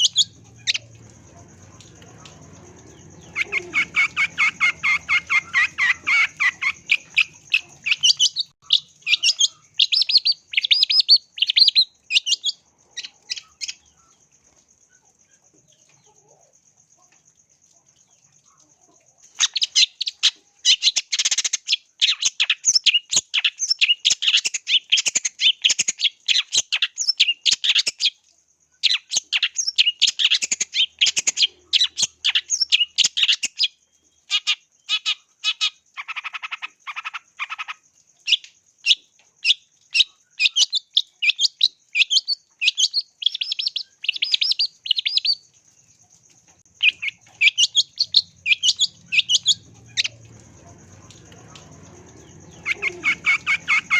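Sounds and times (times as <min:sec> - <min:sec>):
bird rattling calls: 0:00.0 - 0:10.0, 0:46.8 - 0:53.9
bird harsh chattering calls: 0:02.2 - 0:12.4, 0:46.8 - 0:50.2, 0:51.5 - 0:53.9.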